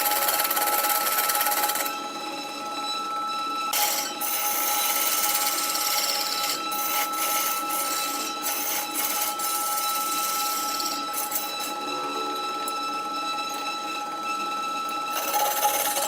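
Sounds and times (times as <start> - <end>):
tool hissing on spinning wood: 0.0 - 2.0, 3.8 - 11.8, 15.1 - 16.0
wood lathe whining: 0.0 - 16.0.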